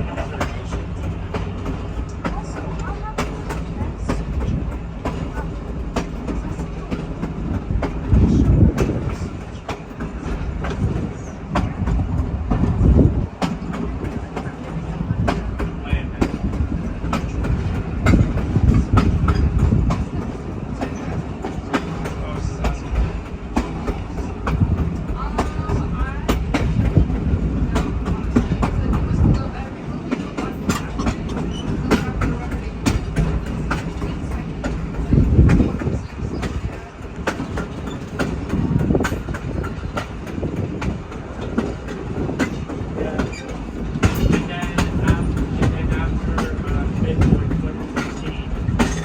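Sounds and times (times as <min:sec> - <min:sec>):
freight train rumbling: 0:00.0 - 0:49.0
wheels clicking over rail joints: 0:00.0 - 0:49.0.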